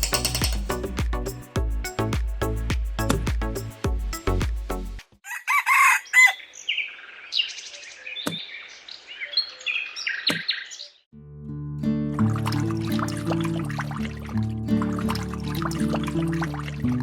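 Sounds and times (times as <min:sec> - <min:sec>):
music with plucked beat: 0:00.0 - 0:05.1
rooster crowing: 0:05.2 - 0:06.4
birds chirping: 0:05.7 - 0:11.1.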